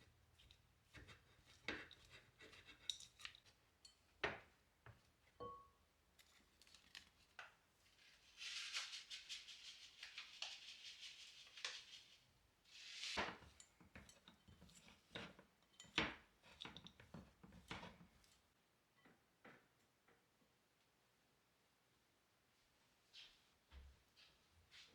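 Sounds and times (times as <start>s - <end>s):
dishes and utensils clinking: 5.4s - 5.8s, 13.3s - 18.0s
scraping or rustling: 7.9s - 15.5s.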